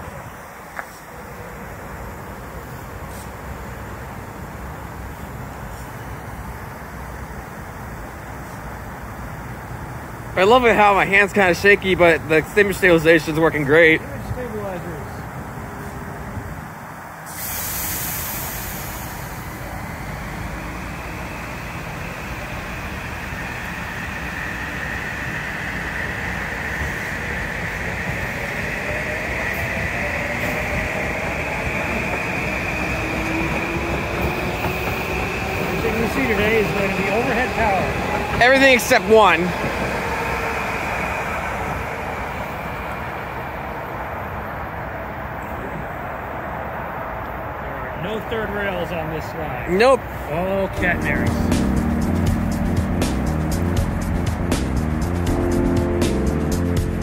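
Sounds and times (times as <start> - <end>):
train wheels rumbling on rail: 0.0 - 46.0, 47.2 - 57.0
hiss: 2.7 - 3.8, 17.2 - 22.4
high whine: 50.6 - 57.0.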